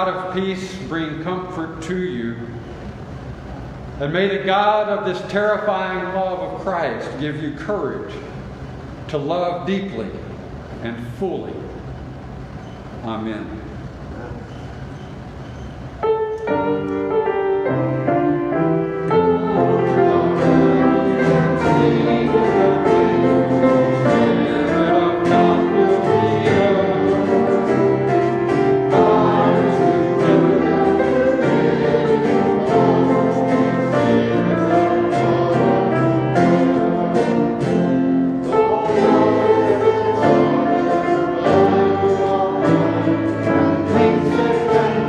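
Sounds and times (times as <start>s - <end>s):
instrumental accompaniment: 16.0s - 45.0s
choir singing a hymn: 16.1s - 45.0s.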